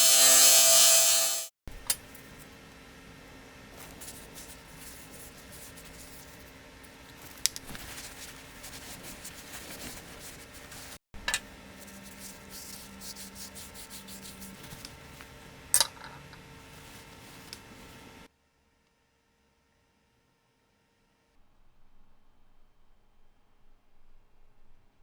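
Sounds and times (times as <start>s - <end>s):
scratchy hand rubbing: 3.8s - 6.6s, 7.6s - 11.0s, 11.7s - 15.4s.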